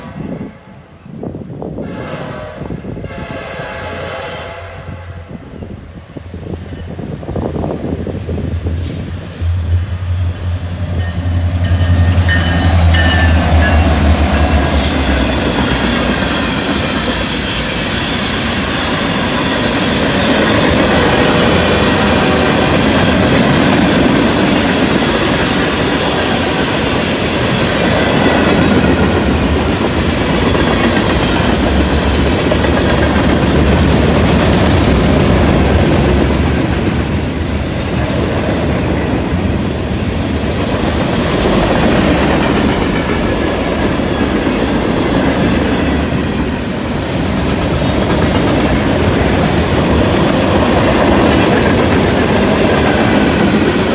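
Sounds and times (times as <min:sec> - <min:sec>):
diesel locomotive hum: 0:00.0 - 0:53.9.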